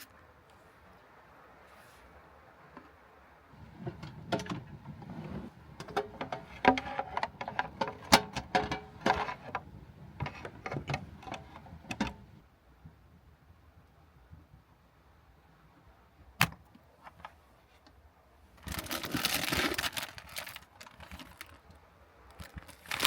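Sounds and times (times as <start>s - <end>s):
irregular clicks and clatter: 5.8s - 12.4s, 18.6s - 21.7s.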